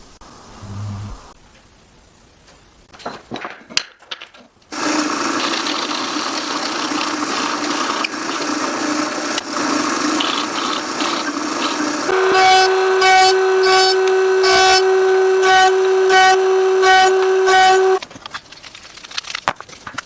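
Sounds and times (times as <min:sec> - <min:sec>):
power tool running: 0:04.7 - 0:18.0.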